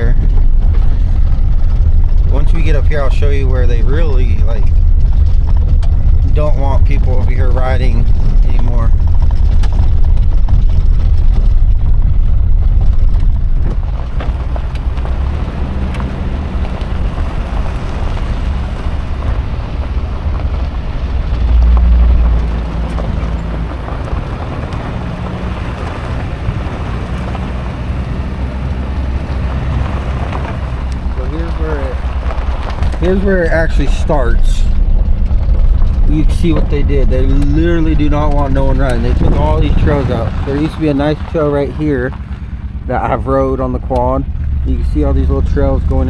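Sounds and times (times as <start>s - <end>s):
vehicle engine rumble: 0.0s - 46.0s
wind and road noise: 0.0s - 46.0s.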